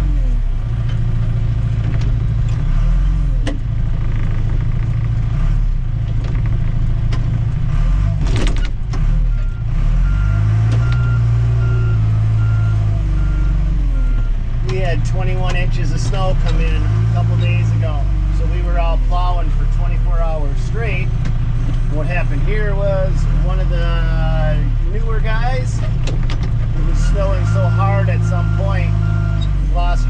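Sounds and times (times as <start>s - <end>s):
diesel engine running under load: 0.0s - 30.0s
backup alarm beeping: 27.3s - 29.6s.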